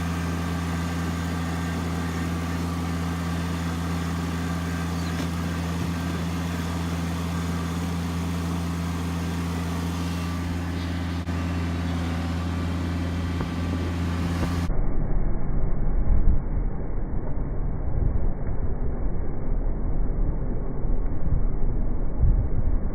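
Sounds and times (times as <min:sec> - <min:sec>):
vehicle engine running: 0:00.0 - 0:22.9
muffled uneven low rumble: 0:09.8 - 0:22.9.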